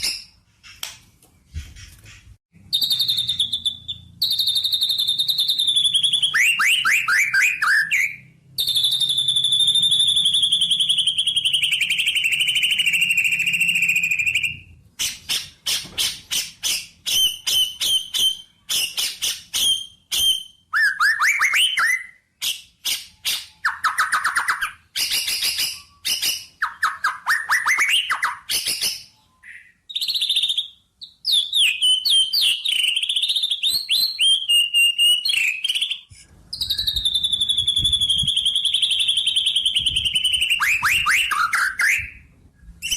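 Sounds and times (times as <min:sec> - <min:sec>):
songbird singing: 0:01.4 - 0:22.2, 0:22.8 - 0:42.9.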